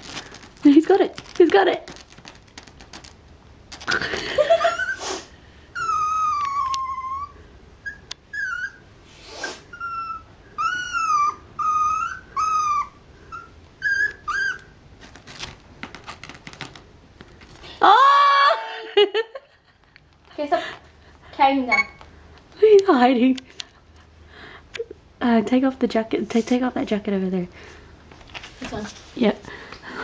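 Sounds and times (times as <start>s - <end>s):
small dog whimpering: 4.6s - 5.0s, 5.8s - 8.8s, 9.4s - 14.8s.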